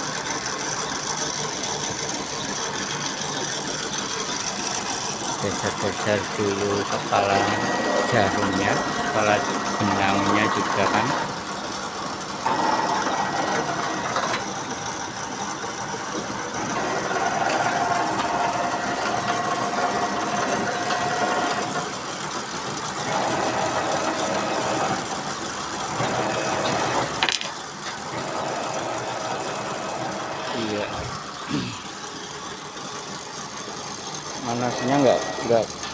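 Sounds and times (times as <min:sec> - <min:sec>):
sewing machine running: 0:00.0 - 0:35.9
sewing machine whine: 0:00.0 - 0:35.9.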